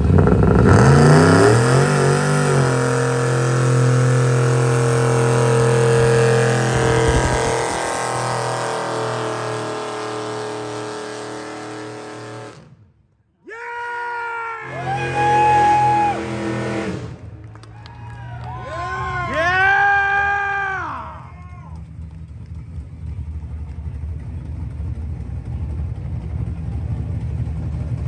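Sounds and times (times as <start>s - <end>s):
car engine at high revs: 0.0s - 12.8s, 14.7s - 17.5s.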